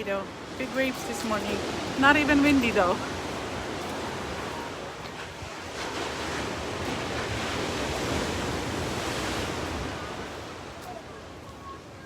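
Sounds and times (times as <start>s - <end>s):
waves breaking and washing in: 0.0s - 12.0s
wind on the microphone: 0.3s - 12.0s.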